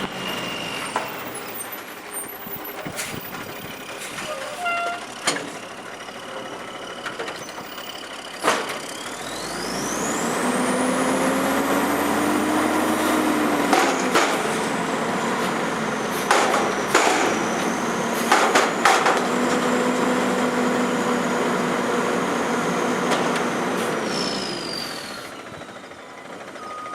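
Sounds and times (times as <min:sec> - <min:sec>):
garbage truck engine and hydraulics: 0:00.0 - 0:26.9.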